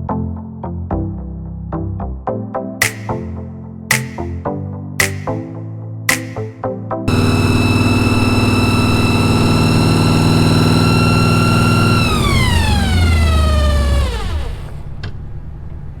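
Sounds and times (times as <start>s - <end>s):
engine running: 7.1s - 15.0s.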